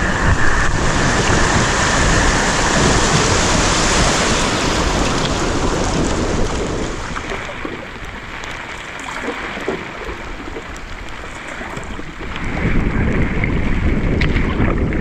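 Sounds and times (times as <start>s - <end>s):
rushing water: 0.0s - 15.0s
wind rumbling on microphone: 0.0s - 15.0s.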